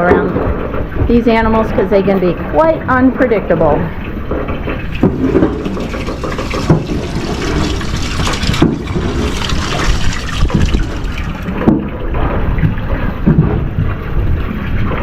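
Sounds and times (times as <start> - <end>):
strong wind gusting on microphone: 4.9 - 15.0.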